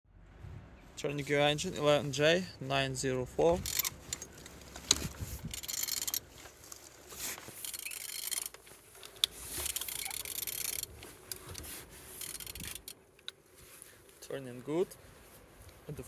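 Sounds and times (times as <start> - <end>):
engine turned by hand scraping: 3.4 - 14.1.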